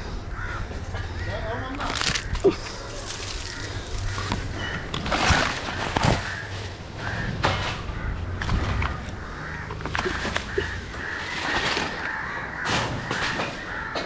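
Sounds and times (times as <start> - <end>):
steady low rumble: 0.0 - 11.4
irregular knocks and scrapes: 3.1 - 14.0.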